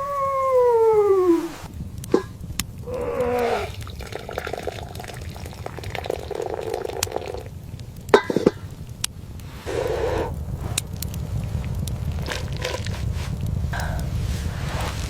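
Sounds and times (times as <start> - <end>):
animal calling: 0.0 - 1.7, 2.8 - 3.9, 9.7 - 10.4
steady low rumble: 1.5 - 15.0.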